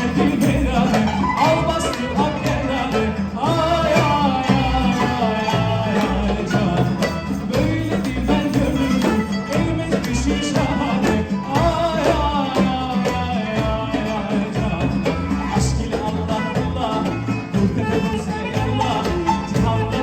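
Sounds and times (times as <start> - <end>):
live band playing folk-pop: 0.0 - 20.0
sliding lead melody: 0.0 - 20.0
steady drum beat: 0.0 - 20.0.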